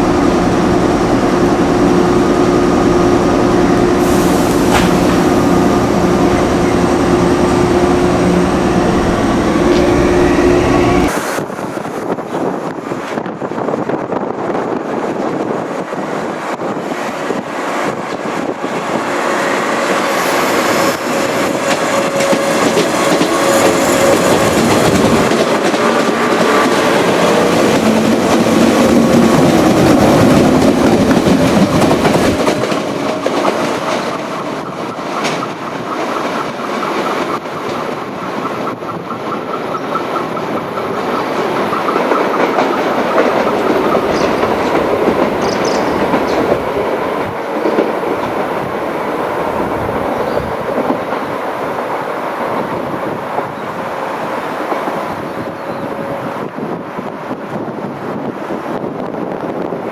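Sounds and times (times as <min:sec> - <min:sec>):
electric train motor and running noise: 0:00.0 - 0:59.9
wheels clattering over rail joints: 0:21.6 - 0:48.7.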